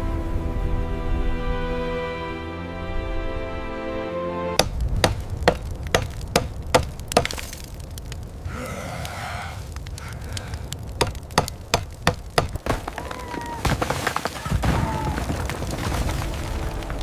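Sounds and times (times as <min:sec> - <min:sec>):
sharp cracks and knocks: 0:04.6 - 0:08.3, 0:09.0 - 0:17.0.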